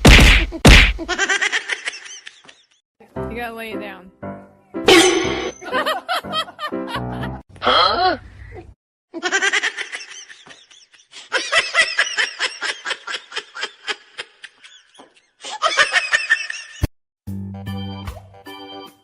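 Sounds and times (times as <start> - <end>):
person laughing hard: 0.5 - 2.6, 5.4 - 8.2
organ music: 4.2 - 7.4, 17.6 - 19.0.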